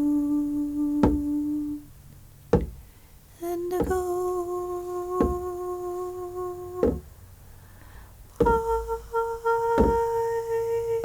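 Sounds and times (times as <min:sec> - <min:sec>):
soft thumps: 0:00.9 - 0:01.8, 0:02.5 - 0:11.0.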